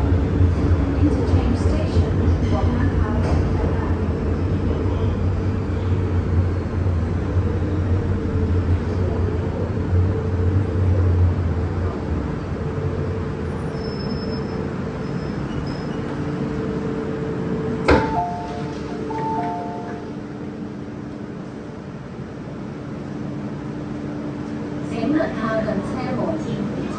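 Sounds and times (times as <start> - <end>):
electric train rumble and motor hum: 0.0 - 26.9
two-note falling chime: 18.0 - 20.1.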